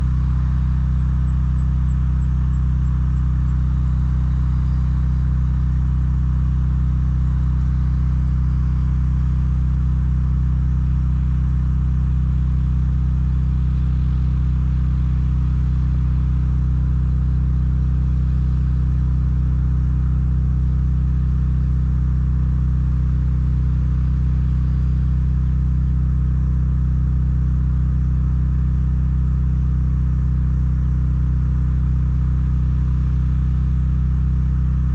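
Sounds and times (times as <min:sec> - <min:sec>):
engine humming steadily: 0:00.0 - 0:34.9.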